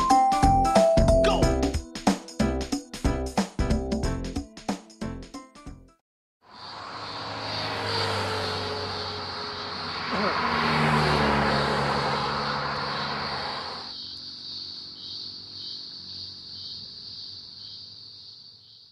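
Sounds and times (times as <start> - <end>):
passing vehicle: 6.5 - 14.3
crickets chirping: 6.5 - 18.9.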